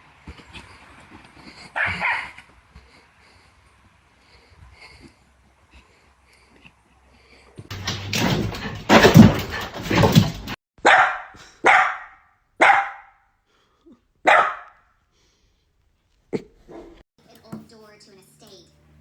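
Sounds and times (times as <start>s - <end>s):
dog barking: 1.8s - 2.4s, 7.7s - 13.2s, 14.2s - 14.8s, 16.7s - 17.0s.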